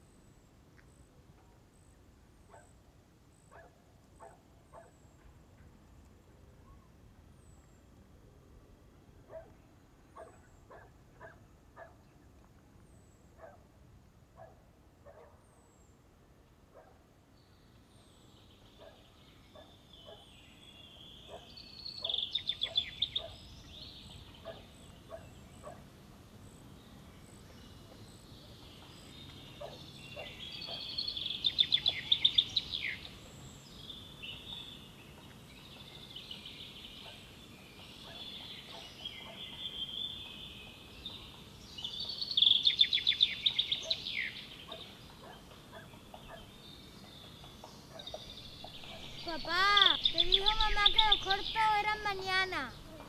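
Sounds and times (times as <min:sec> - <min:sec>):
small birds chirping: 0:16.7 - 0:53.0
loud rapid bird trilling: 0:48.0 - 0:52.9.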